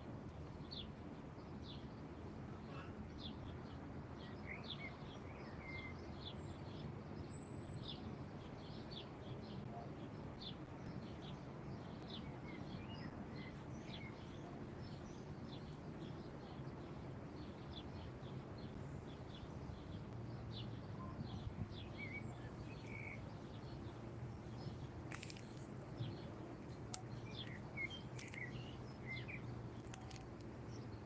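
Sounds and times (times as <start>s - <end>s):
small birds chirping: 10.4s - 31.0s
low background rumble: 14.1s - 31.0s.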